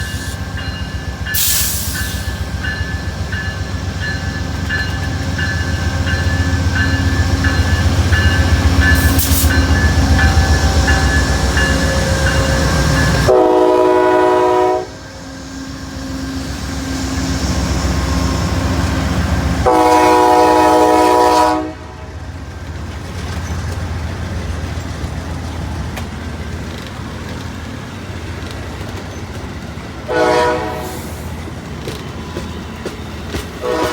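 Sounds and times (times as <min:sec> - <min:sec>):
train rumbling: 0:00.0 - 0:33.9
locomotive horn blasts: 0:13.1 - 0:15.0, 0:19.6 - 0:22.1, 0:30.1 - 0:31.1, 0:33.6 - 0:33.9.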